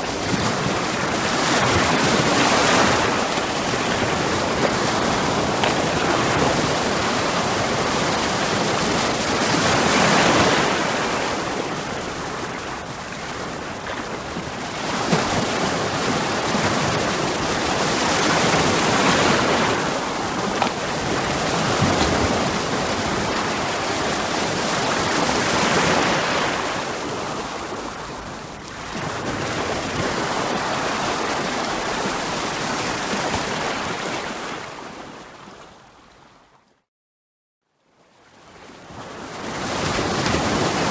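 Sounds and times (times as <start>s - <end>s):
sea waves breaking on rocks: 0.0s - 27.9s, 39.4s - 40.9s.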